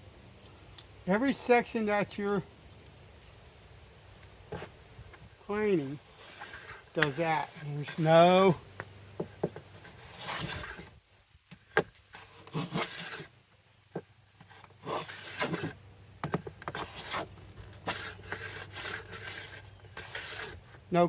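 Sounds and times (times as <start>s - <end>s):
plane rubbing on wood: 14.8s - 15.8s, 16.7s - 20.6s.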